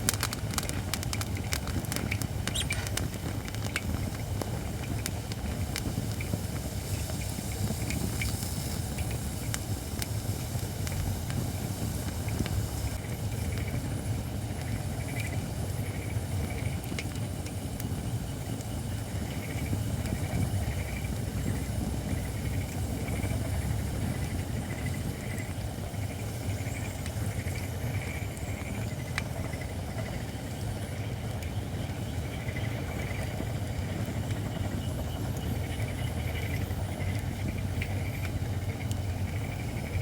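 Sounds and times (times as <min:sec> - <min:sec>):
fire crackling: 0:00.0 - 0:40.0.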